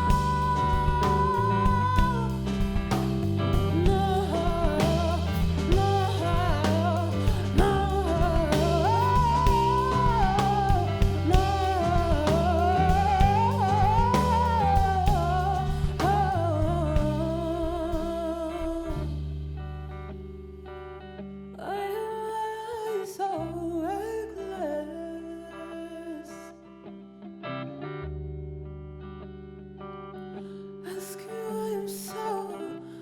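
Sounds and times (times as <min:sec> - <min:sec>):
woman singing: 0:00.0 - 0:19.2, 0:21.6 - 0:26.7, 0:30.8 - 0:33.0
band playing guitar bass and drums: 0:00.0 - 0:20.2.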